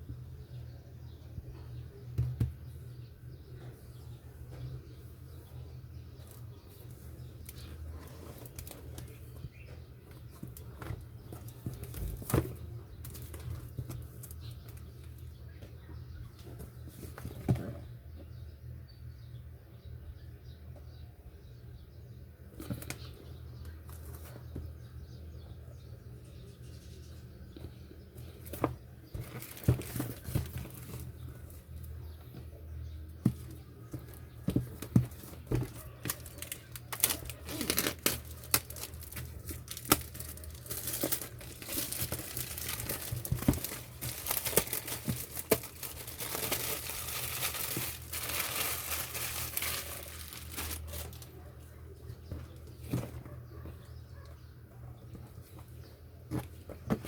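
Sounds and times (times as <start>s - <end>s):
packaging crinkling and rustling: 7.4s - 9.4s, 28.4s - 31.6s, 33.2s - 51.4s.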